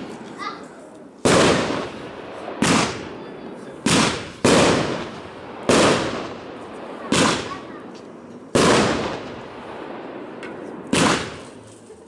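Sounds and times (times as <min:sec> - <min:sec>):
firework shells bursting: 0:03.8 - 0:11.9.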